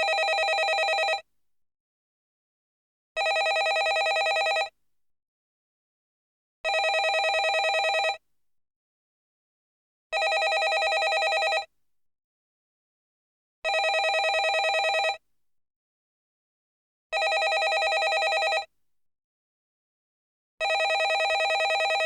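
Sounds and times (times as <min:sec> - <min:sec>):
landline telephone ringing: 0:00.0 - 0:01.2, 0:03.2 - 0:04.7, 0:06.7 - 0:08.2, 0:10.2 - 0:11.7, 0:13.7 - 0:15.2, 0:17.2 - 0:18.7, 0:20.6 - 0:22.0.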